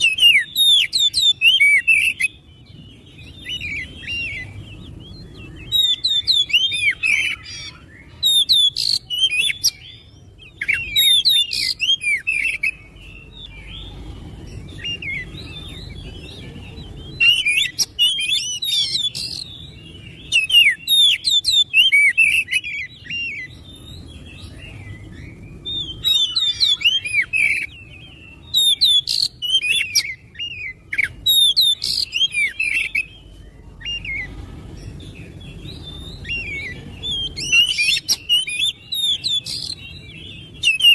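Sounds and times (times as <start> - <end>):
bird singing rapid varied notes: 0.0 - 40.9
low steady hum: 11.9 - 20.9, 29.3 - 40.6.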